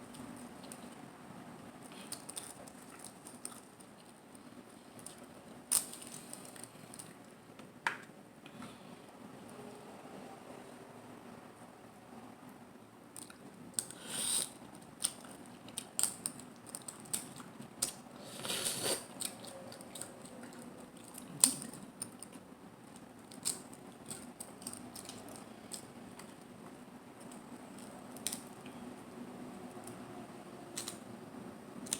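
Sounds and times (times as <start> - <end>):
person chewing: 13.2 - 22.4.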